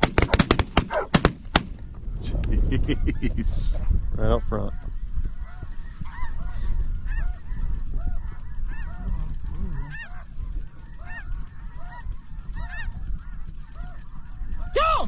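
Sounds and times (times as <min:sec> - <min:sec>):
wind rumble: 0:00.0 - 0:15.0
geese honking: 0:04.6 - 0:14.9.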